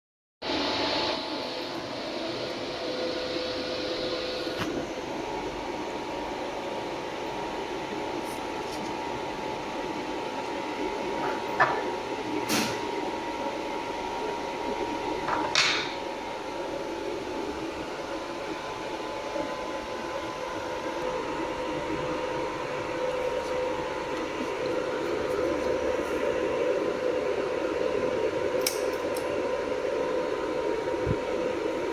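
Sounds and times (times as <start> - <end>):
laser welding machine humming: 0.5 - 31.9.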